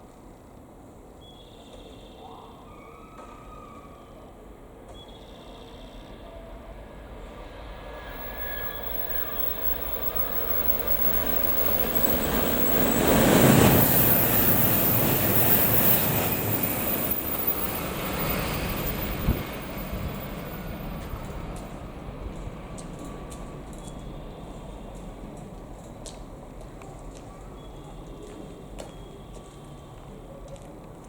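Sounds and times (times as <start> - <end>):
train rushing past: 6.0 - 26.6.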